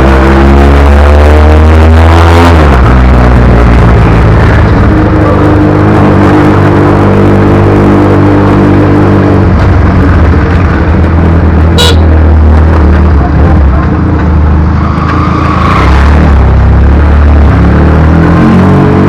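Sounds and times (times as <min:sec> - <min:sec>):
motorcycle engine running: 0:07.9 - 0:15.1.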